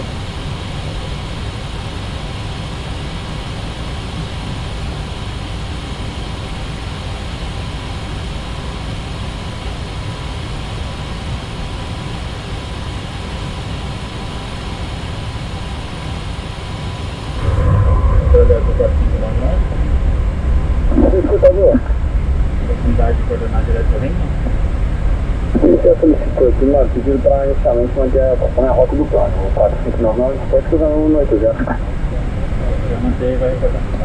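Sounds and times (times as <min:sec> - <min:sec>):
air-conditioning hiss: 0:00.0 - 0:34.0
faint steady whine: 0:00.0 - 0:34.0
rush of airflow: 0:17.0 - 0:34.0
low rumble: 0:17.1 - 0:34.0.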